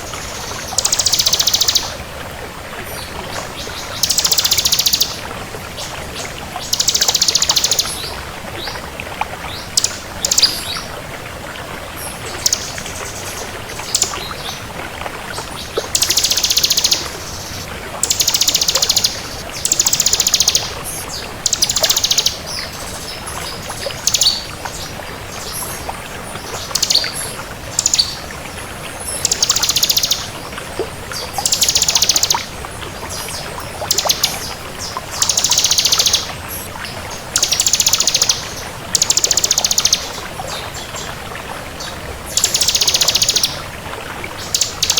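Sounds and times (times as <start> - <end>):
bird singing trilled phrases: 0.4 - 1.9, 3.6 - 5.2, 6.7 - 8.0, 9.8 - 10.8, 15.9 - 22.7, 27.8 - 28.2, 29.1 - 30.3, 31.4 - 32.5, 33.6 - 36.7, 37.4 - 40.6, 41.8 - 43.6, 44.4 - 44.9.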